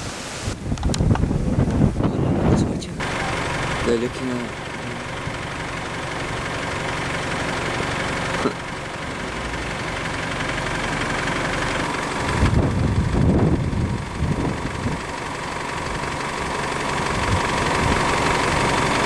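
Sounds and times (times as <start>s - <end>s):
car engine idling: 1.6s - 19.0s
low rumble: 12.3s - 15.1s.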